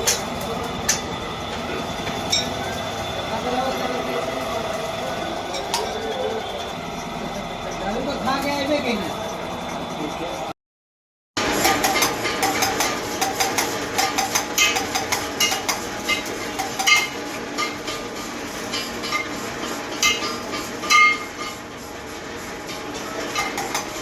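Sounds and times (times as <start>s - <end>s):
metal tools clinking and scraping: 5.5s - 8.6s.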